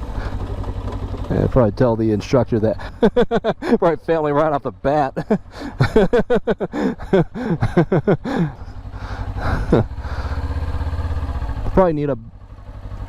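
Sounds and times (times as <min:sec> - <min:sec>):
motorcycle engine idling: 0:00.0 - 0:13.0
person talking: 0:01.3 - 0:02.9, 0:03.6 - 0:05.4.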